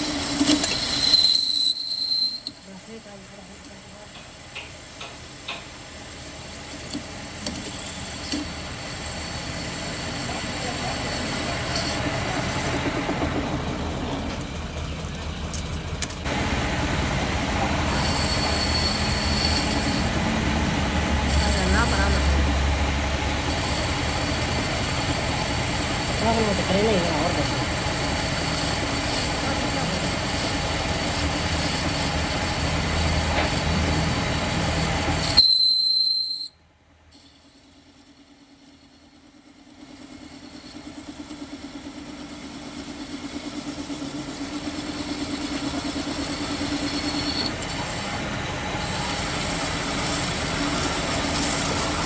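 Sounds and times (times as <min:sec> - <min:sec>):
high-pitched metallic squeal: 0:00.0 - 0:02.7, 0:07.7 - 0:12.3, 0:17.6 - 0:34.2, 0:34.8 - 0:36.6, 0:45.0 - 0:48.1
workshop machinery running: 0:00.0 - 0:35.7, 0:37.0 - 0:52.0.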